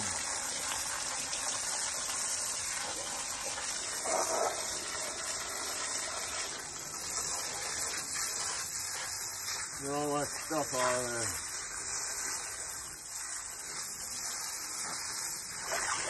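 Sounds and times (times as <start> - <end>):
hose spray hissing: 6.2 - 16.0.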